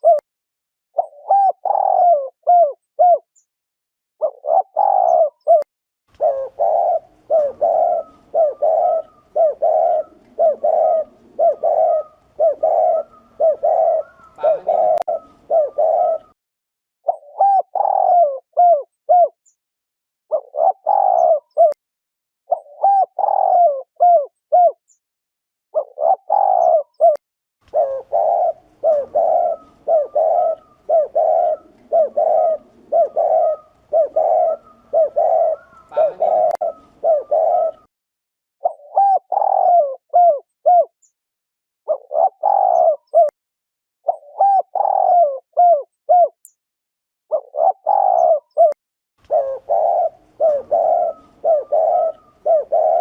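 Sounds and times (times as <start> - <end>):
dove cooing: 0.0 - 0.2, 1.0 - 3.2, 4.2 - 16.4, 17.1 - 19.4, 20.3 - 21.8, 22.5 - 24.8, 25.8 - 37.9, 38.6 - 40.9, 41.9 - 43.3, 44.1 - 46.4, 47.3 - 53.0.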